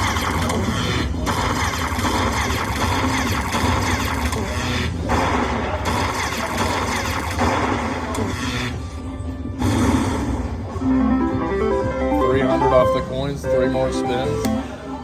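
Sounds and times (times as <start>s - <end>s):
slot machine music and chimes: 10.8s - 14.8s.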